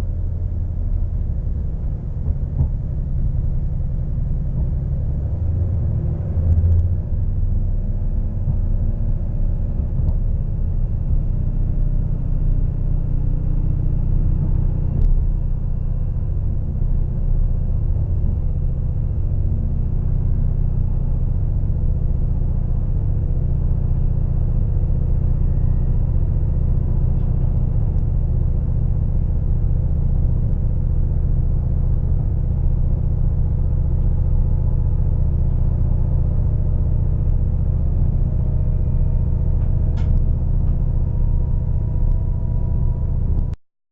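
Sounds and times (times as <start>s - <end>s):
faint click: 40.0s - 40.2s.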